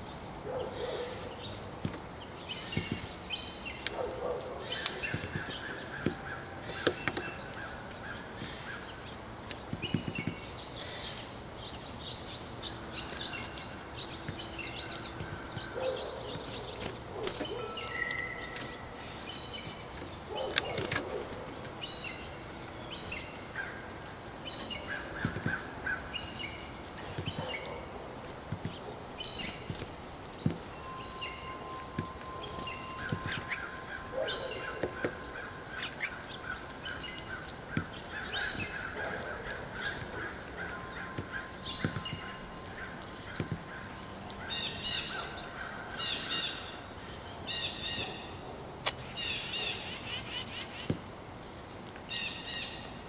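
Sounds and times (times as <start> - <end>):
small birds chirping: 0.0 - 53.0
woodpecker pecking on concrete: 1.4 - 11.0, 13.0 - 18.8, 24.6 - 44.4.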